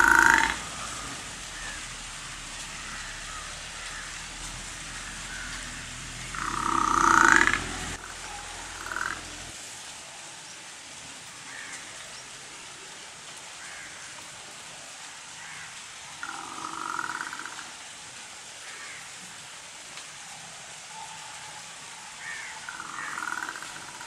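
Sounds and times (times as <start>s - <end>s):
young water buffalo calling: 6.3s - 9.4s.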